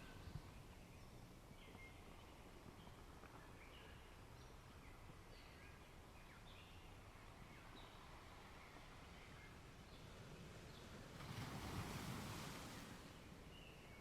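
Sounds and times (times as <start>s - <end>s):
low steady background rush: 0.0s - 14.0s.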